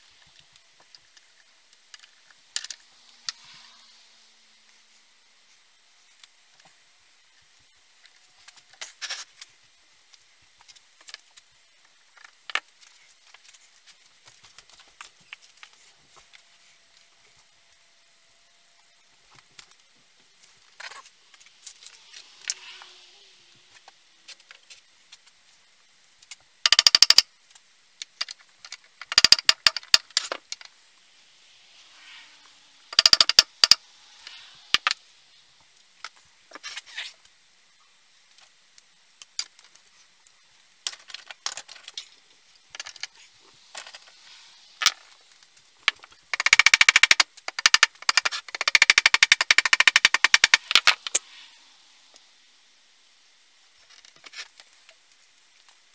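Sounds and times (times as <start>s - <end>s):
bursts of rapid clicking: 46.3s - 50.9s.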